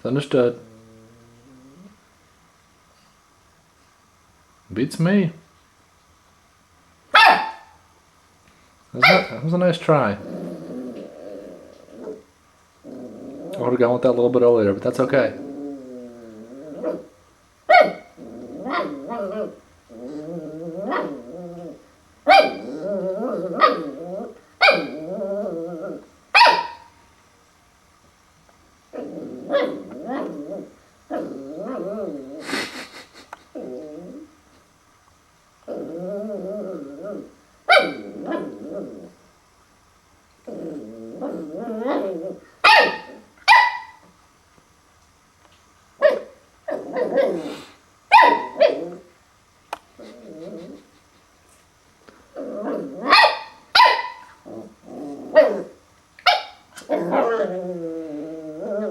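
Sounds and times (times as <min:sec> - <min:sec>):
puppy growling: 0:00.0 - 0:02.1, 0:09.0 - 0:26.9, 0:28.8 - 0:34.6, 0:35.6 - 0:39.4, 0:40.4 - 0:44.1, 0:46.0 - 0:49.2, 0:49.8 - 0:51.4, 0:52.0 - 0:58.9
puppy barking: 0:07.1 - 0:07.8, 0:09.0 - 0:09.5, 0:17.7 - 0:19.6, 0:22.3 - 0:22.8, 0:23.5 - 0:24.0, 0:24.6 - 0:25.0, 0:26.4 - 0:27.0, 0:29.5 - 0:30.4, 0:37.7 - 0:38.5, 0:42.6 - 0:44.1, 0:46.0 - 0:47.5, 0:48.1 - 0:48.9, 0:53.0 - 0:54.4, 0:55.4 - 0:57.5.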